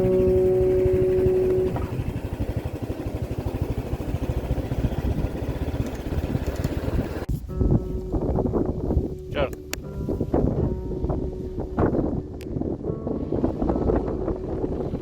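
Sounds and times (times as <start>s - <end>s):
strummed acoustic guitar chord: 0.0s - 2.4s
vehicle engine throbbing: 0.0s - 15.0s.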